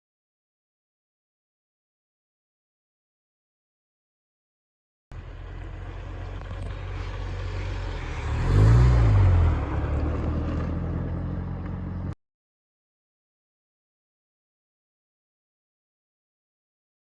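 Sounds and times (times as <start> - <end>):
car engine revving: 5.2 - 12.2.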